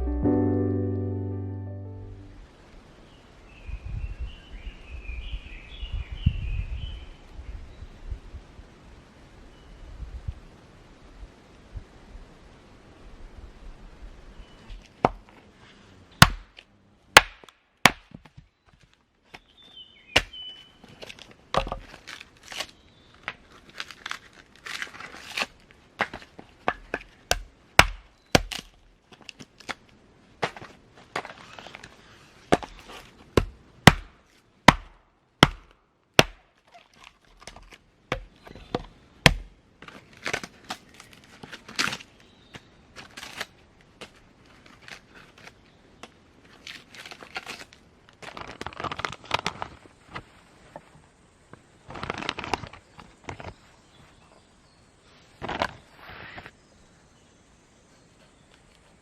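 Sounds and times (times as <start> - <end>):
tool chopping wood: 16.2 - 16.6, 17.2 - 18.4, 20.2 - 20.4, 26.0 - 28.7, 32.5 - 36.5, 37.4 - 39.5.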